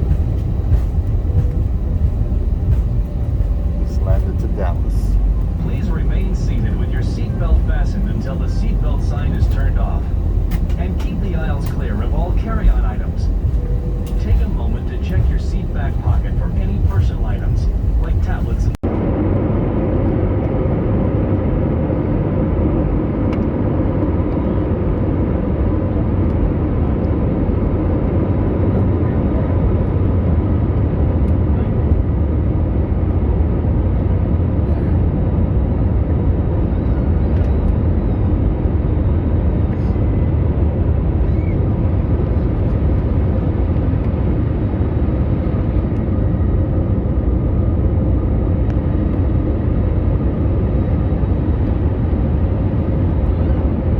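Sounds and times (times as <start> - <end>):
faint steady hums: 0.0 - 21.1
jet airliner cabin rumble: 0.0 - 53.9.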